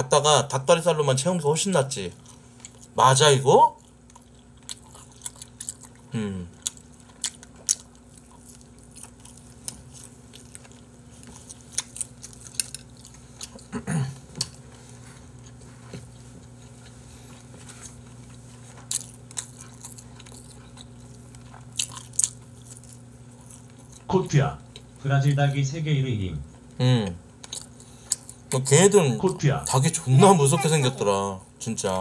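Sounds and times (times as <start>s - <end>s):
chewing and biting meat: 3.8s - 13.7s, 18.0s - 25.0s
person humming: 6.1s - 6.6s.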